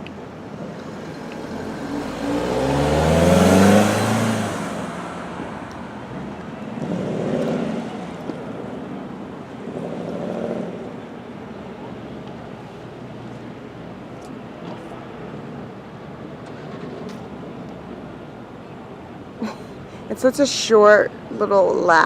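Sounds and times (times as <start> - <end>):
car engine accelerating past: 0.8 - 9.0.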